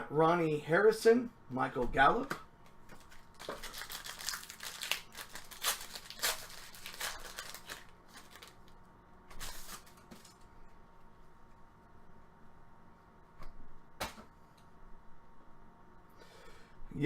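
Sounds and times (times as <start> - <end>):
card packs crinkling: 2.9 - 10.4.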